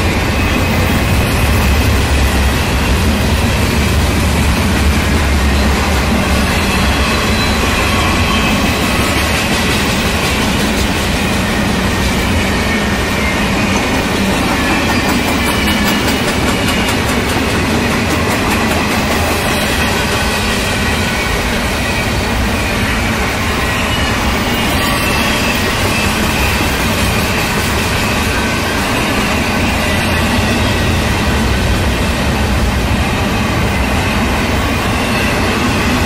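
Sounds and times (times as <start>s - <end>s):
freight train wheels rumbling: 0.0s - 36.0s.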